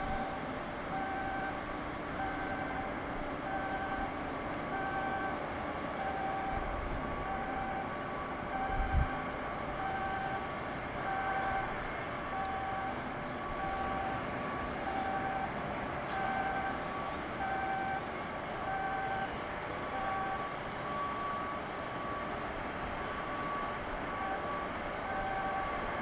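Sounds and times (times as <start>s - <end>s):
electronic warning alarm beeping: 0.0s - 1.6s, 2.2s - 4.1s, 4.7s - 5.4s, 6.0s - 9.1s, 9.7s - 14.2s, 14.8s - 15.6s, 16.2s - 18.0s, 18.6s - 22.3s, 23.1s - 25.8s
industrial noise: 0.0s - 26.0s.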